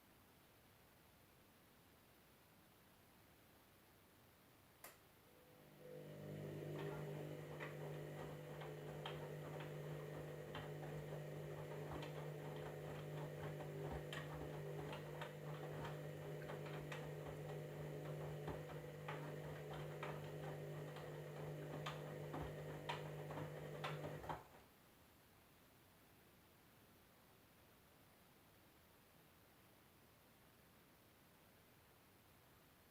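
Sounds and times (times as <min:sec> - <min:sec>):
washing machine humming: 0:05.4 - 0:24.6.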